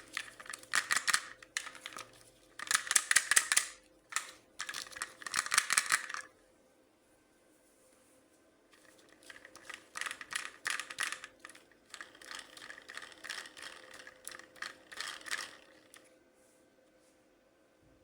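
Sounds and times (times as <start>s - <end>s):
hands handling plastic toys: 8.8s - 13.7s.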